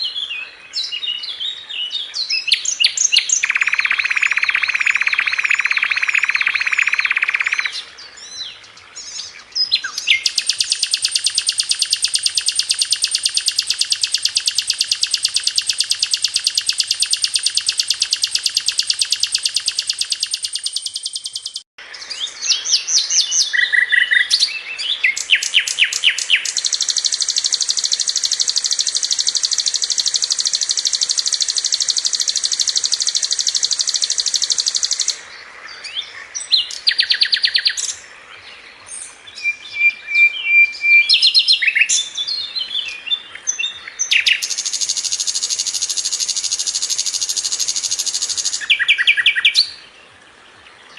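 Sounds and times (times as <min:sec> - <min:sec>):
bird trills and chirps: 0:00.0 - 0:49.9
buzzy bird trill: 0:03.1 - 0:07.8, 0:10.0 - 0:21.7, 0:25.0 - 0:35.2, 0:44.0 - 0:49.7.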